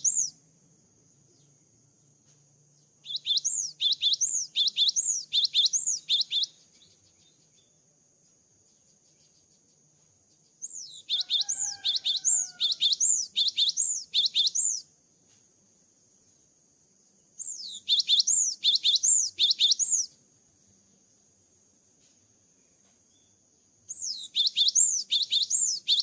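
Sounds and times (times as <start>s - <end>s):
bird singing high whistled notes: 0.0s - 0.4s, 3.0s - 7.7s, 10.6s - 14.9s, 17.4s - 20.2s, 23.9s - 26.0s.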